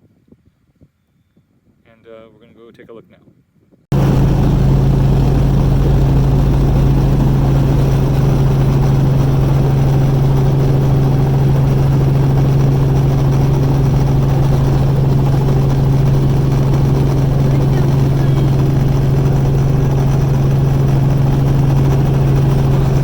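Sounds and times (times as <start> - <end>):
helicopter engine and rotor: 3.9 - 23.0.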